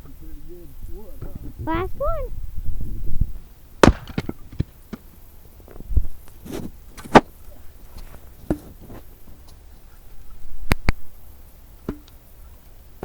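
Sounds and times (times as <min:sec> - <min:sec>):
axe splitting log: 0:03.8 - 0:04.7.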